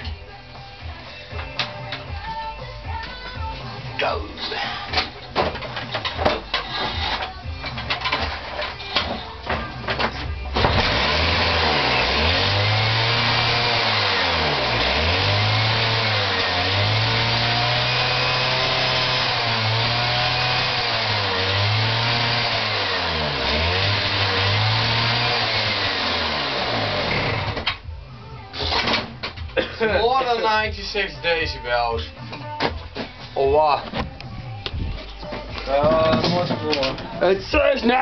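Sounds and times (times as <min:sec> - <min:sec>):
lawnmower engine surging: 0:10.6 - 0:27.7.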